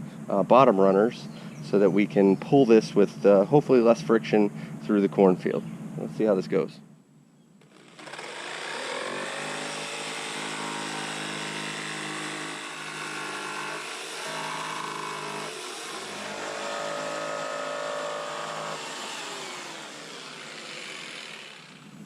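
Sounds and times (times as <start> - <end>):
electric saw cutting plastic pipe: 7.6 - 21.9.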